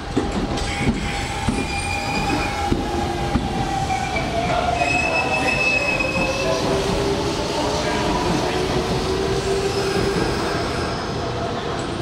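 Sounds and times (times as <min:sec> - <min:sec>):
train wheels squealing: 0:00.6 - 0:02.7, 0:03.9 - 0:06.6.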